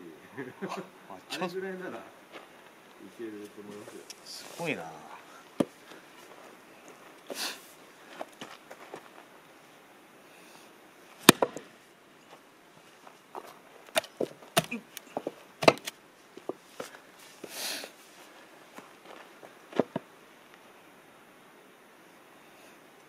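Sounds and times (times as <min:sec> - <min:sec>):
wood splitting knocks: 0:11.2 - 0:11.7, 0:13.9 - 0:16.0.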